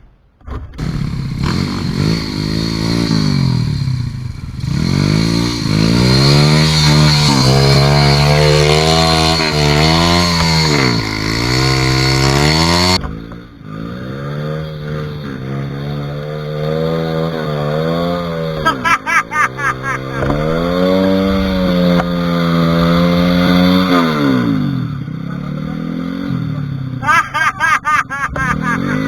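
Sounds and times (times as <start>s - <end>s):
dirt bike engine revving: 14.0s - 29.0s.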